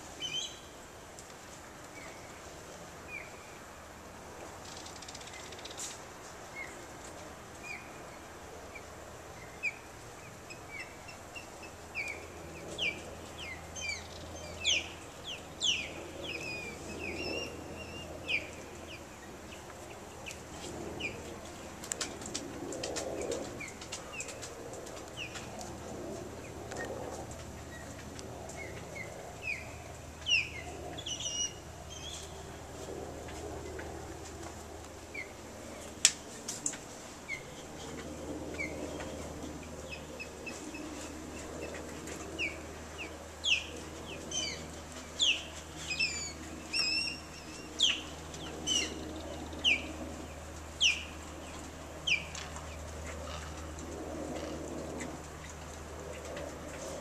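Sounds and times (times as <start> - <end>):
steady low hum: 0.0 - 57.0
birds chirping: 0.2 - 0.8, 7.6 - 22.2, 27.6 - 32.8, 37.3 - 53.7.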